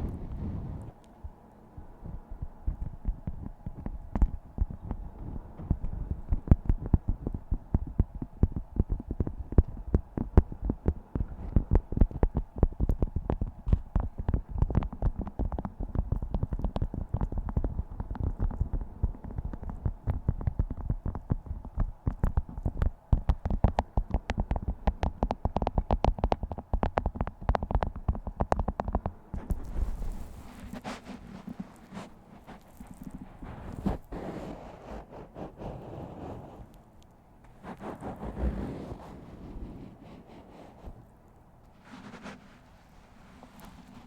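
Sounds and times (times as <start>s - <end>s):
wax food wrap crinkling: 29.4s - 34.5s.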